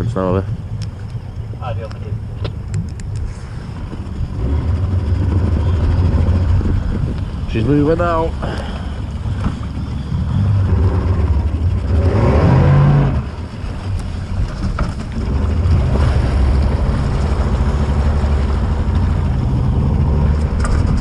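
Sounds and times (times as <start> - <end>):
boat engine running: 0.0 - 21.0
water noise: 0.0 - 21.0
wind: 0.0 - 21.0.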